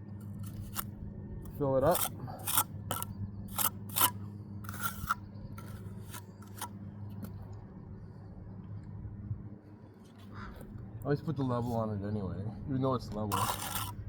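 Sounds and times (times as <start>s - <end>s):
faint steady hum: 0.0s - 14.0s
trowel scraping mortar: 0.2s - 0.9s, 1.5s - 6.8s, 13.3s - 14.0s.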